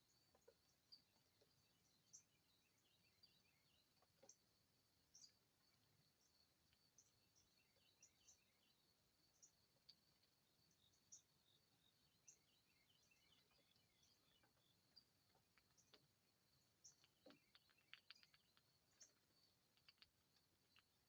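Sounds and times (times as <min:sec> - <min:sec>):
distant birds chirping: 0:00.0 - 0:21.0.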